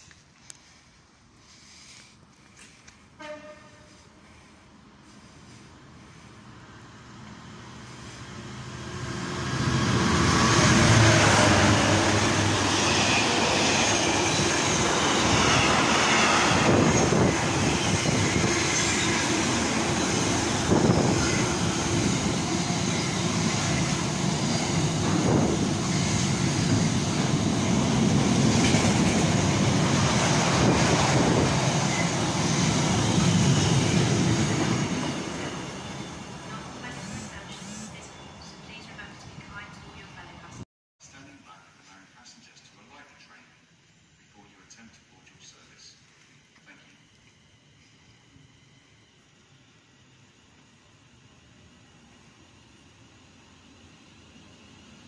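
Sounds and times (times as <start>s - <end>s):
freight train wheels rumbling on rails: 1.9s - 38.1s.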